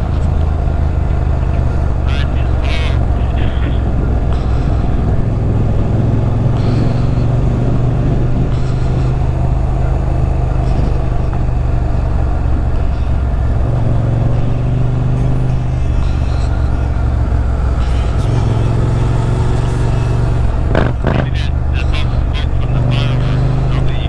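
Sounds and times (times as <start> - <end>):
wind rumble on microphone: 0.0 - 21.8
motorcycle engine running: 0.0 - 24.0.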